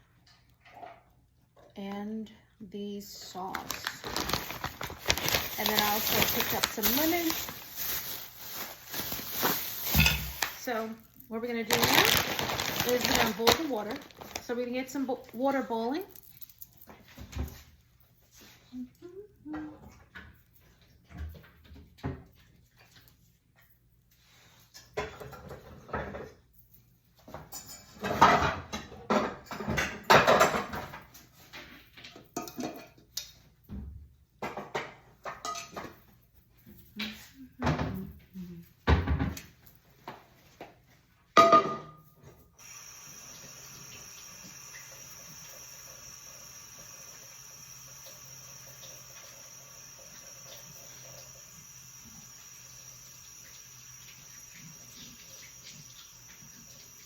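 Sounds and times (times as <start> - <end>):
pots and pans clattering: 7.3 - 10.7, 27.4 - 31.1, 32.2 - 33.1, 41.4 - 42.0.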